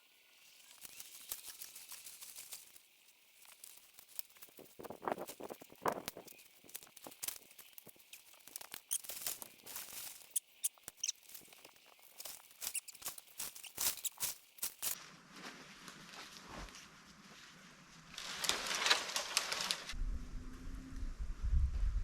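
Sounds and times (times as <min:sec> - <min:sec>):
crackling and crunching clicks: 0:00.4 - 0:15.0.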